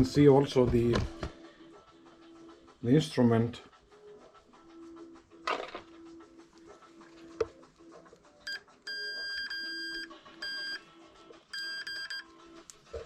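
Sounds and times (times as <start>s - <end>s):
multimeter continuity beeps: 8.5s - 10.9s, 11.5s - 12.3s.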